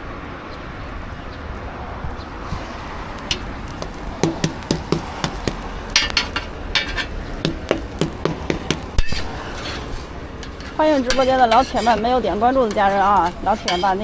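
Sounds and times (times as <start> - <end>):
metallic scrapes: 3.3 - 14.0
utensil knocking on work surface: 3.8 - 5.7, 7.4 - 9.0.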